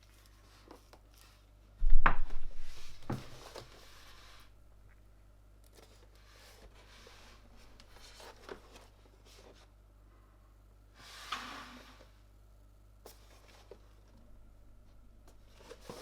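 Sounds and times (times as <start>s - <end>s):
faint scraping: 1.8s - 4.6s.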